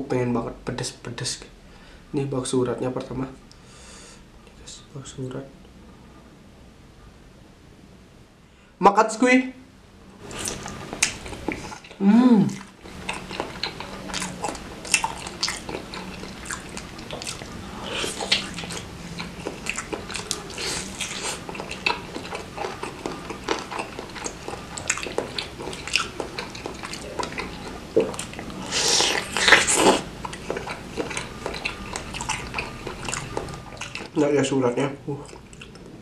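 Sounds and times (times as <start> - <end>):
chewing and biting: 10.2 - 34.2, 35.1 - 36.0
wet mouth clicks: 10.3 - 34.2, 35.2 - 35.9.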